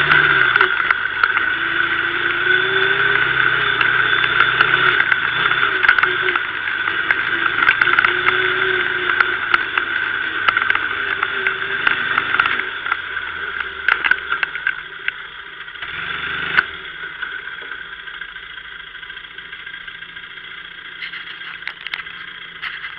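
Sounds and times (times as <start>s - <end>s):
quad engine running: 0.0s - 22.9s
short clicks and rattles: 20.8s - 22.9s.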